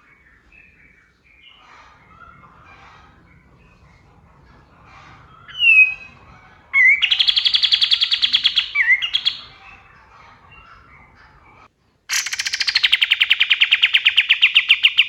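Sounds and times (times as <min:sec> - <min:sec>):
faint bird chatter: 0:00.0 - 0:15.0
bird whistle and trill: 0:05.2 - 0:09.8, 0:12.1 - 0:15.0.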